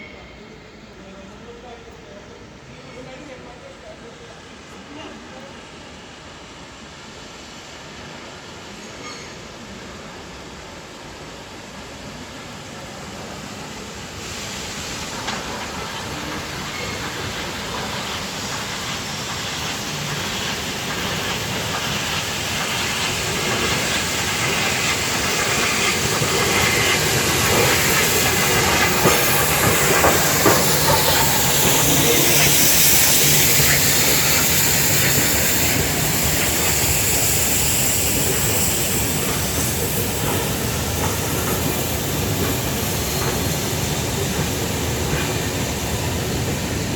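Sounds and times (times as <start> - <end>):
vehicle rushing with hiss: 14.0 - 46.9.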